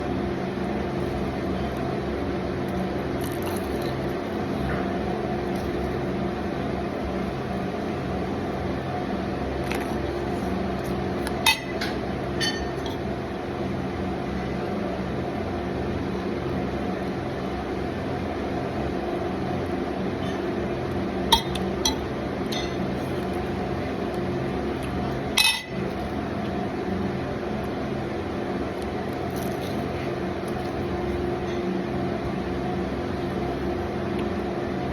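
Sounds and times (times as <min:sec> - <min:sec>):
appliance hum: 0:00.0 - 0:34.9
tableware clinking: 0:11.5 - 0:13.0, 0:21.3 - 0:22.8, 0:25.4 - 0:25.8.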